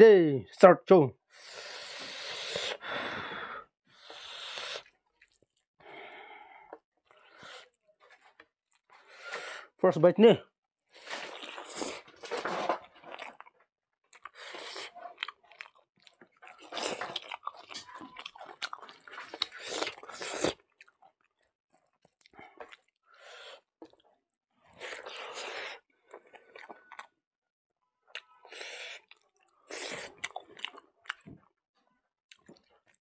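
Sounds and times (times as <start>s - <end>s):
person chewing food: 3.9s - 9.2s, 10.9s - 24.0s, 24.7s - 27.1s, 28.1s - 31.4s, 32.3s - 33.0s.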